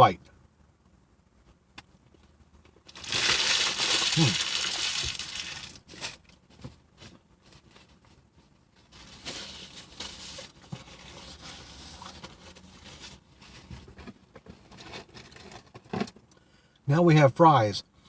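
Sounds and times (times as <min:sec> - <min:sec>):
paper wrapper crinkling: 0:02.9 - 0:06.4.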